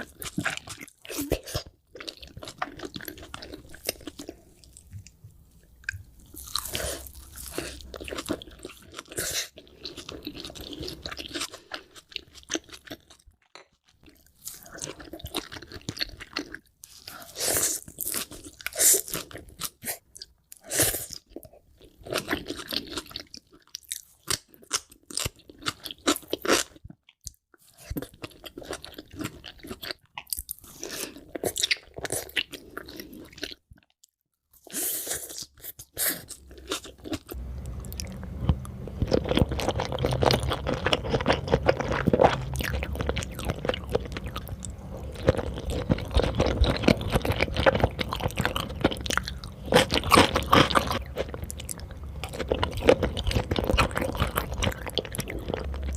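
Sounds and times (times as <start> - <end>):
close chewing with crunchy bites: 0.0 - 55.9
low hum: 37.3 - 55.9.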